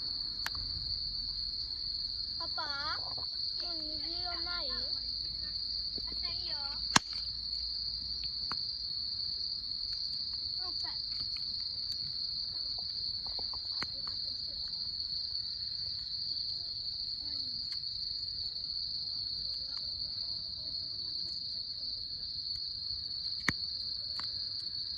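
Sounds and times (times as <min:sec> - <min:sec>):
high-pitched insect chorus: 0:00.0 - 0:24.9
wood fire crackling and popping: 0:06.0 - 0:14.2, 0:23.2 - 0:24.8.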